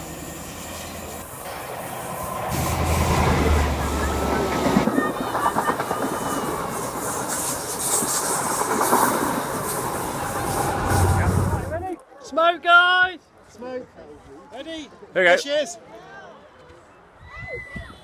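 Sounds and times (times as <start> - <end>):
train rushing hiss: 0.0 - 11.9
diesel engine droning: 2.4 - 4.7, 10.2 - 11.8
train wheels clickety-clack: 2.5 - 11.8.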